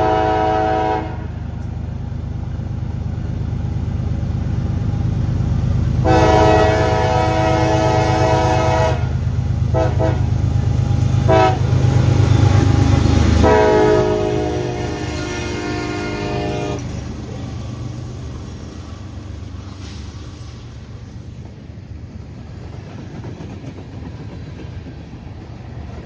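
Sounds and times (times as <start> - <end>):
locomotive air horn: 0.0 - 1.5, 6.0 - 10.4, 11.3 - 11.8, 13.2 - 17.0
locomotive engine rumble: 0.0 - 26.0.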